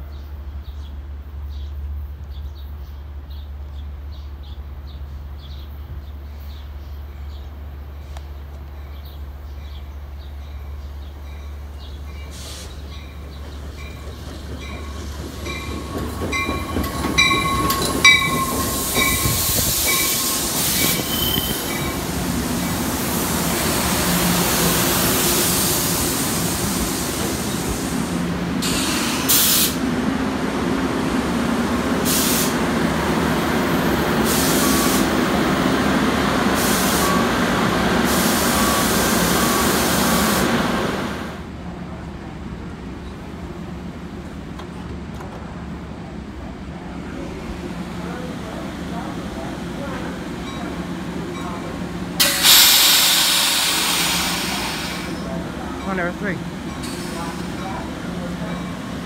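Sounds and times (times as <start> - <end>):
wheels rumbling on rails: 0.1 - 34.4
train bell ringing: 11.2 - 22.1, 50.4 - 52.5, 55.2 - 59.0
air hisses: 12.3 - 12.8, 18.5 - 22.4, 24.6 - 29.8, 32.0 - 32.7, 52.2 - 55.2.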